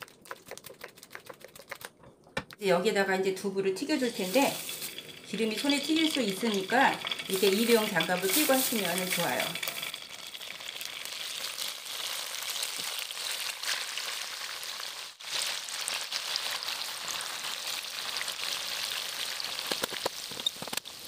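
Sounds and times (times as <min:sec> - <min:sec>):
tofu sizzling in oil: 0:04.0 - 0:21.0.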